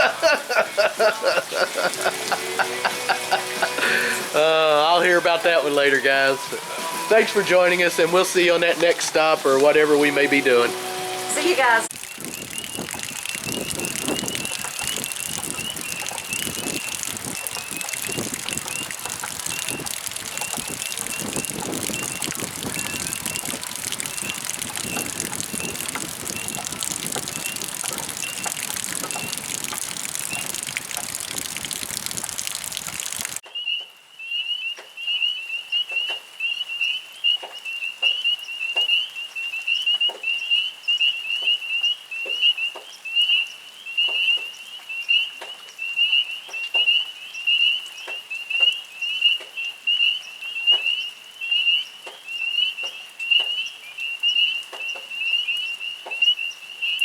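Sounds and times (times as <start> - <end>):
steady rain: 0.0 - 33.4
frogs calling: 11.5 - 33.4.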